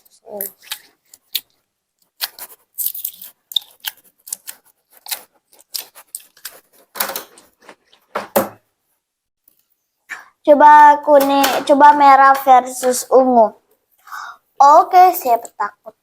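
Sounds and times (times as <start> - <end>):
slime squelches: 0.0 - 8.1.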